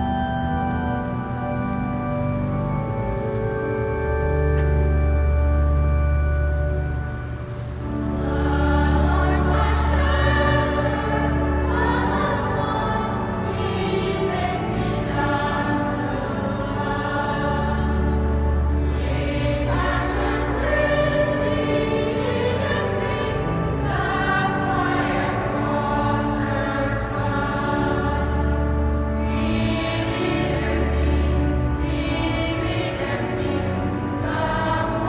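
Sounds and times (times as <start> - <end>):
choir singing: 8.0 - 35.0.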